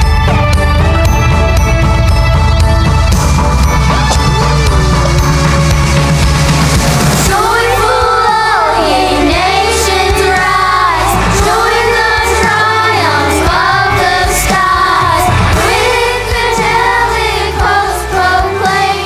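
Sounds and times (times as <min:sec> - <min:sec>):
instrumental accompaniment: 0:00.0 - 0:19.0
children singing: 0:07.0 - 0:19.0.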